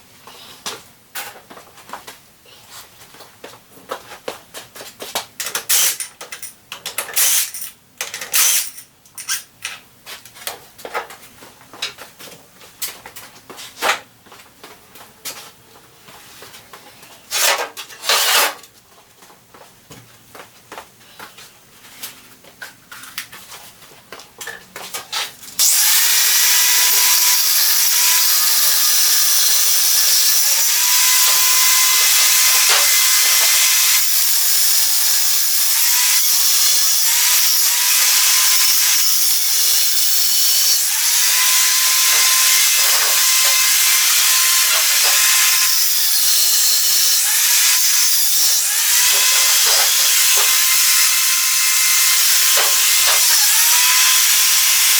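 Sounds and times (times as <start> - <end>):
power tool grinding metal: 5.7 - 6.1, 8.4 - 8.8, 25.6 - 54.9.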